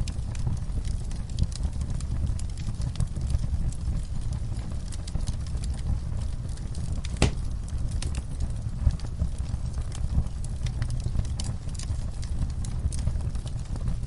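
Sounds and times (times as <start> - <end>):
fire crackling: 0.0 - 14.0
sharp pops of fire: 4.8 - 13.9.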